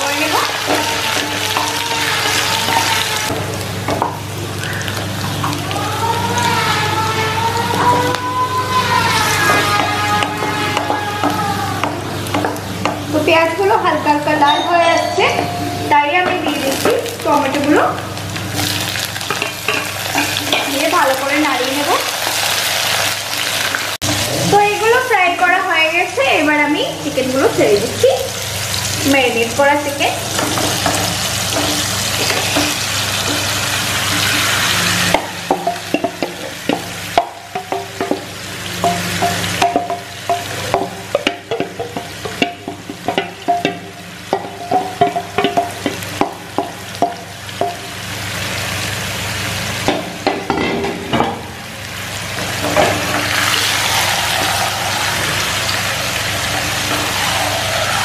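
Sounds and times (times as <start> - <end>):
food sizzling in hot oil: 0.0 - 58.0
spatula scraping and tapping pan: 30.2 - 47.9.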